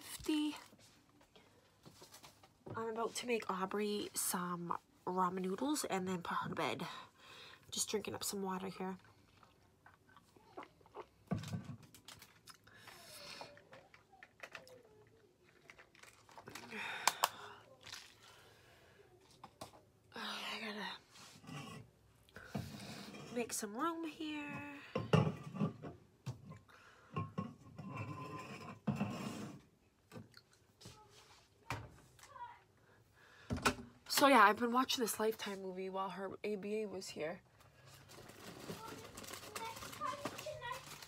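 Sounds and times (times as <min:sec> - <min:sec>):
household items knocking and clattering: 0:11.2 - 0:12.4, 0:24.4 - 0:30.3, 0:38.0 - 0:41.0
rustling: 0:37.8 - 0:41.0.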